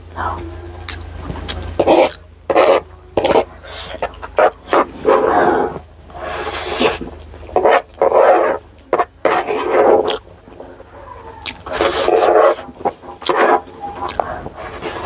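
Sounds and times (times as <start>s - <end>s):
chewing and smacking: 0.3s - 15.0s
hissing slurp: 1.8s - 10.2s, 11.5s - 15.0s.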